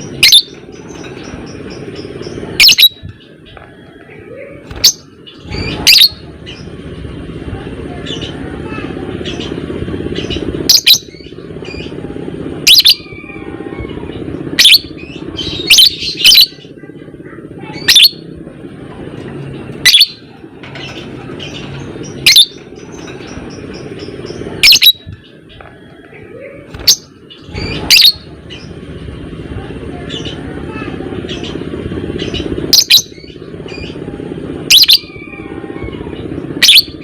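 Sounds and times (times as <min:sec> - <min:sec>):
steady background hum: 0:00.0 - 0:37.0
lovebird shrill calls: 0:00.2 - 0:00.5, 0:02.6 - 0:03.0, 0:04.7 - 0:06.6, 0:14.6 - 0:16.5, 0:22.2 - 0:23.0, 0:24.6 - 0:25.1, 0:26.8 - 0:28.2.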